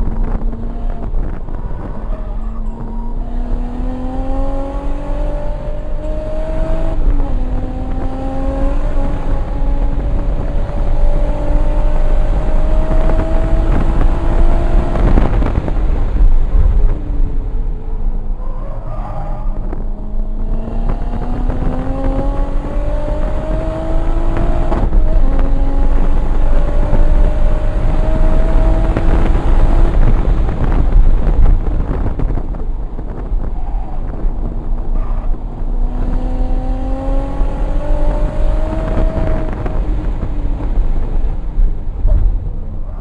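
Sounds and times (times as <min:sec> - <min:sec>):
car engine pulling hard: 0:00.0 - 0:43.0
wind and road noise: 0:00.0 - 0:43.0.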